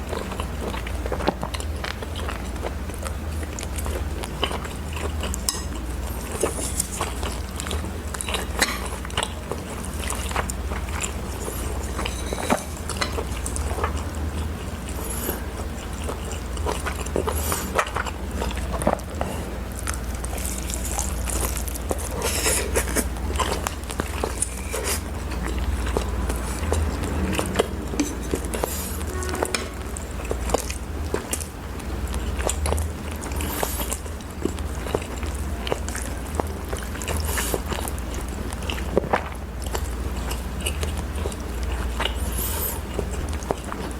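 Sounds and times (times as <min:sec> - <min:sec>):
chewing and slurping: 0:00.0 - 0:43.9
steady low hum: 0:00.0 - 0:43.9.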